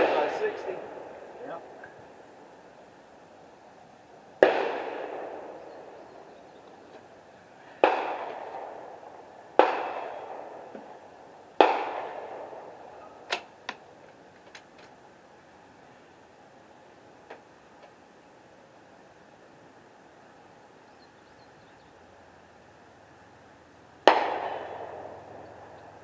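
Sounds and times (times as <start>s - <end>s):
gunshots with echo: 0.0s - 1.6s, 4.4s - 6.0s, 7.8s - 11.0s, 11.6s - 12.9s, 24.0s - 25.7s.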